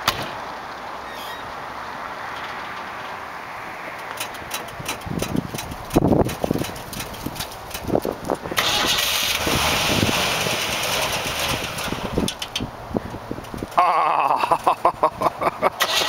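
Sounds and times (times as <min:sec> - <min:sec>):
engine running steadily: 0:04.0 - 0:16.0
engine cranking and starting: 0:04.2 - 0:12.7, 0:15.8 - 0:16.0.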